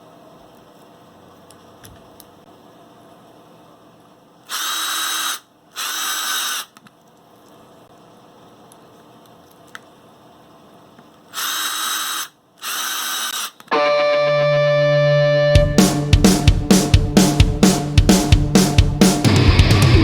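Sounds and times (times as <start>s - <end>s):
power drill running in bursts: 4.5s - 6.7s, 11.4s - 13.6s.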